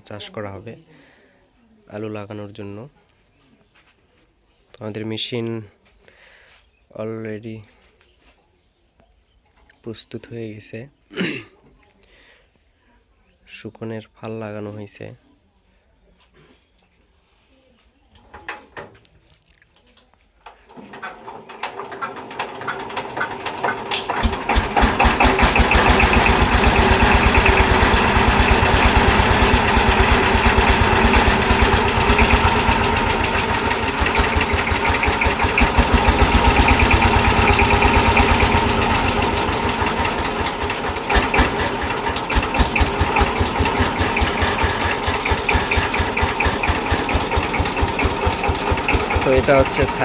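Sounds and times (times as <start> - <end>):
diesel engine thumping: 22.0 - 50.0.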